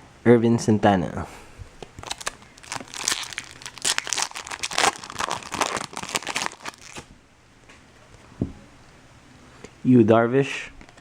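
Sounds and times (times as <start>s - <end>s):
card pack wrapper tearing and crinkling: 2.0s - 7.1s.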